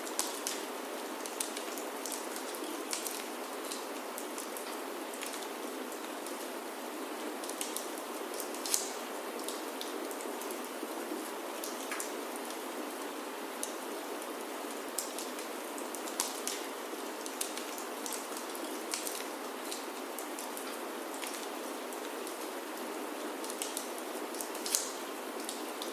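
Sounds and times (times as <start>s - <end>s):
wood fire crackling: 0.0s - 6.4s, 7.4s - 9.9s, 14.8s - 22.6s, 23.4s - 25.9s
rain on a wooden roof: 0.0s - 25.9s.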